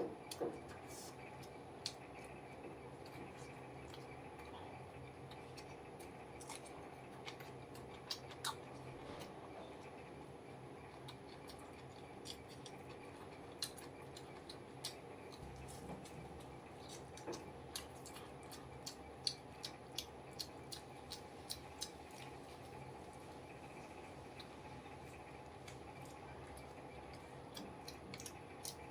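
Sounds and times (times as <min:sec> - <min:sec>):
person chewing food: 0:00.0 - 0:10.0, 0:10.8 - 0:28.9
faint steady hum: 0:00.0 - 0:28.9.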